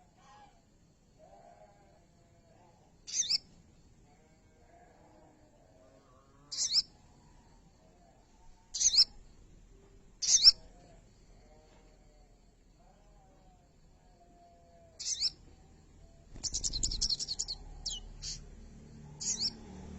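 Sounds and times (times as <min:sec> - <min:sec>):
bird calling high-pitched: 0:03.1 - 0:03.4, 0:08.8 - 0:09.1, 0:10.2 - 0:10.6, 0:15.0 - 0:15.4, 0:16.4 - 0:18.5, 0:19.2 - 0:19.6.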